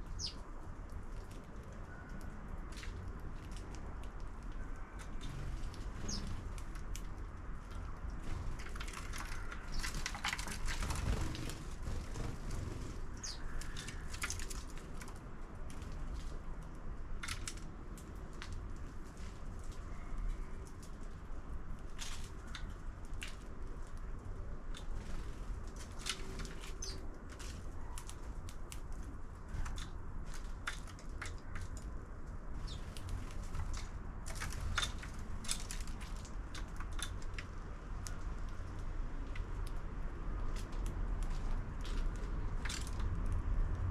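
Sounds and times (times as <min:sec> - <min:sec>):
bird chirps: 0:00.1 - 0:00.4, 0:32.6 - 0:32.8
birds pecking at feeder: 0:00.2 - 0:16.0, 0:19.2 - 0:39.8.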